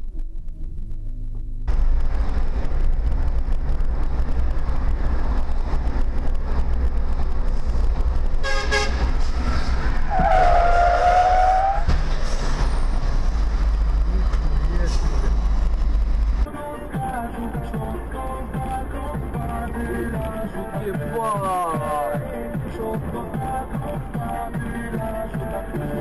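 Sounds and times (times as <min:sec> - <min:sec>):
vehicle driving on road: 0:00.0 - 0:26.0
car horn toots: 0:08.4 - 0:09.1, 0:10.1 - 0:11.9.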